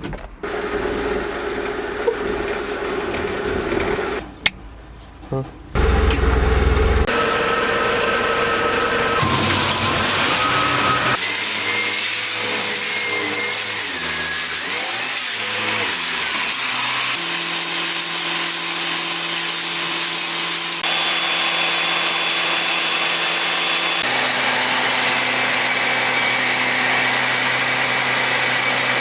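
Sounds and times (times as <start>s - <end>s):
diesel truck engine running: 5.8s - 11.1s.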